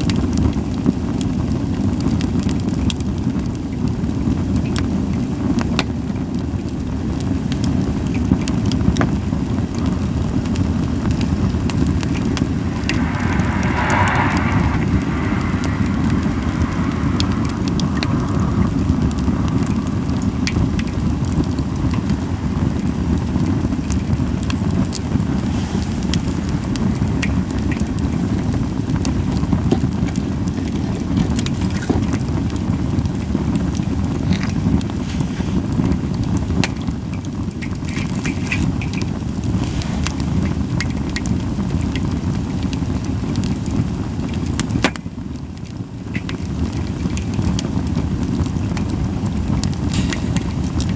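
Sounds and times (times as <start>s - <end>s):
low fire rumble: 0.0s - 50.9s
wood fire crackling and popping: 15.1s - 27.3s, 43.4s - 50.9s.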